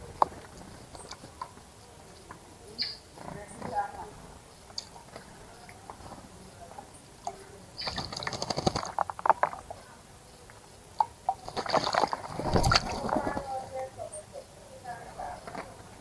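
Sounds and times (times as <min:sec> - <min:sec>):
bird splashing and fluttering in water: 0:04.8 - 0:09.8, 0:11.0 - 0:13.8.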